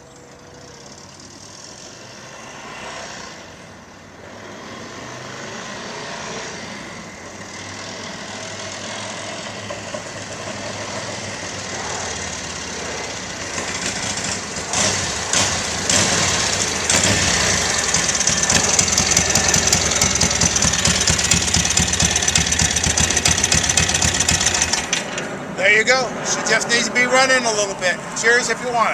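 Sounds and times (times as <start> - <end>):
motorcycle engine running: 9.6 - 25.1.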